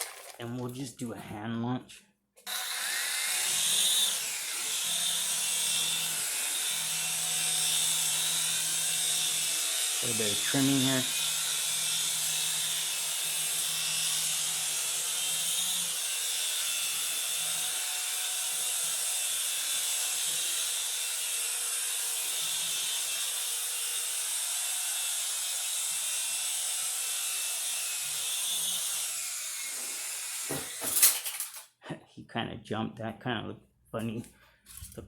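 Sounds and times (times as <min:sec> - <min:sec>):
toy helicopter rotor buzzing: 0:02.5 - 0:31.6.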